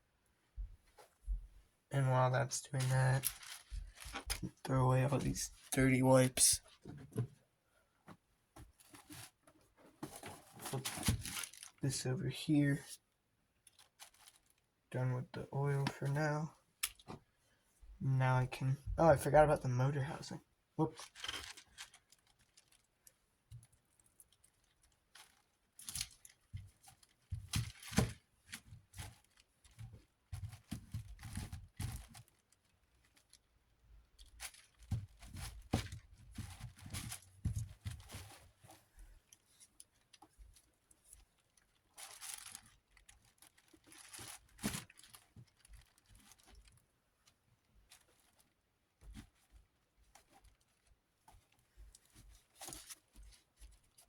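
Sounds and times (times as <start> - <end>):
paper towels rustling and rubbing: 2.6 - 5.7.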